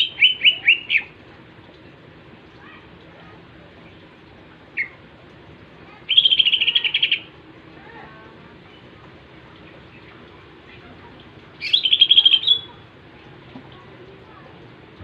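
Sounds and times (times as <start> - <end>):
bird singing trill: 0.0 - 1.1, 6.1 - 7.3, 11.6 - 12.8.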